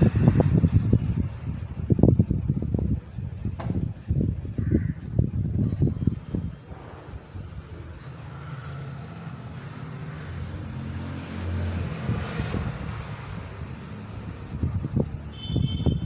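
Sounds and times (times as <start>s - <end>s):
passing vehicle rumble: 0.0s - 4.6s, 5.5s - 15.4s
uneven low thumps: 2.5s - 8.0s.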